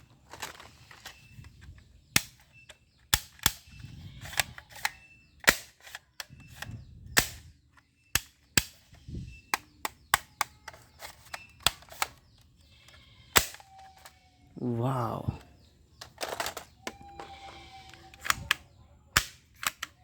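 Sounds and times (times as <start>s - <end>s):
toy pistol shots snapping: 2.2s - 2.4s, 3.1s - 7.5s, 8.2s - 8.8s, 13.3s - 13.7s, 18.1s - 20.0s.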